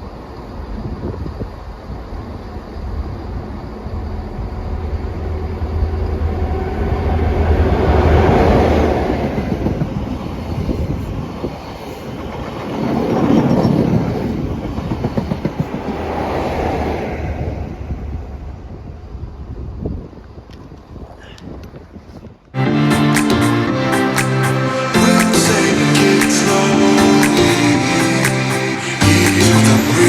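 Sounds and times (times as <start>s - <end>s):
train rumbling on rails: 0.0s - 22.6s
wheels clattering over rail joints: 11.5s - 16.3s.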